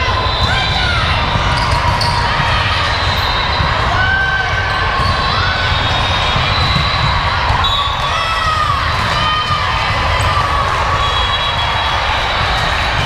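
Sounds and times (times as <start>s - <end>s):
hum of spectators: 0.0s - 13.0s
sneakers squeaking on court floor: 0.2s - 3.8s.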